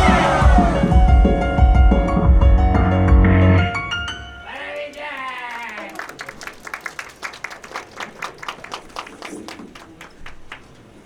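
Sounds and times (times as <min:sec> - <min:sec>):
audience clapping: 0:04.4 - 0:11.0.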